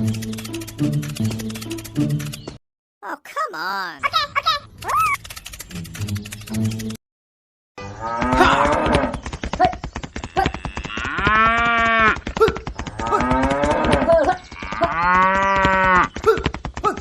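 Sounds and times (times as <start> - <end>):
sharp clicks: 0.0 - 2.6, 4.7 - 7.0
cattle mooing: 10.3 - 12.2, 13.0 - 16.1.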